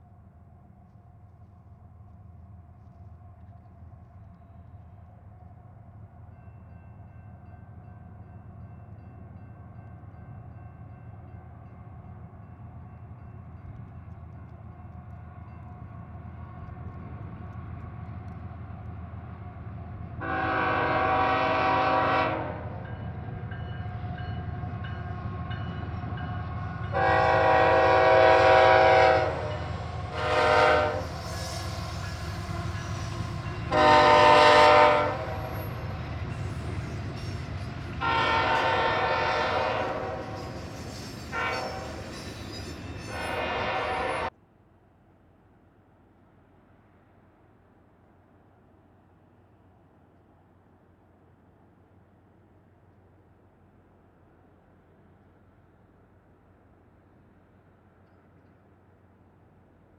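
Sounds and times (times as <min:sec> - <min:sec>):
locomotive horn blasts: 0:20.2 - 0:22.8, 0:26.9 - 0:31.2, 0:33.7 - 0:35.6, 0:38.0 - 0:40.4, 0:41.3 - 0:42.0, 0:43.1 - 0:44.3.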